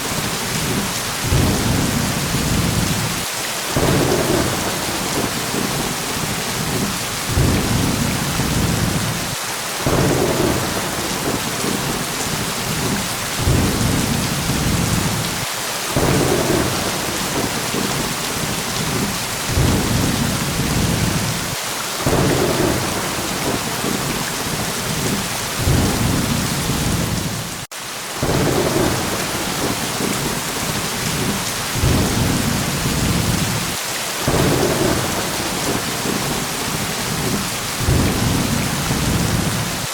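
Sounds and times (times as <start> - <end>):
heavy rain hissing: 0.0 - 39.9
low thunder rumbles: 0.1 - 3.2, 3.8 - 39.9.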